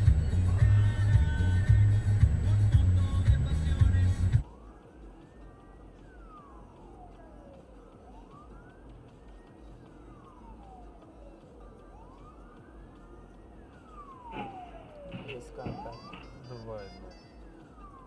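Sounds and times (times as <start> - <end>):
low rumble: 0.0 - 4.4
emergency siren wailing: 0.0 - 18.0.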